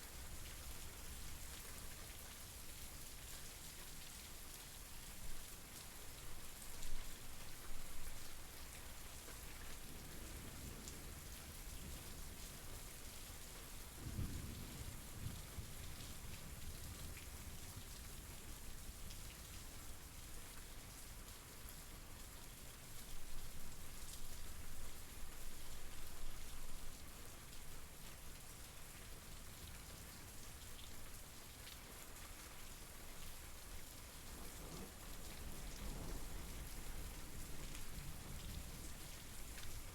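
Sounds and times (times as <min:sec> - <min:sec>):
rain falling: 0:00.0 - 0:39.9
low rumble of thunder: 0:13.7 - 0:18.5, 0:34.3 - 0:39.9.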